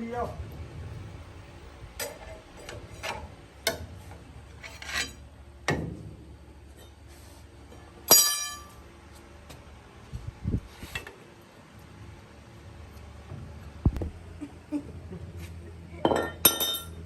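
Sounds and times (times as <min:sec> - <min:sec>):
metal tools clinking and scraping: 0:04.5 - 0:05.3, 0:08.1 - 0:08.8, 0:16.1 - 0:17.0
loud ringing metallic clang: 0:08.1 - 0:08.8.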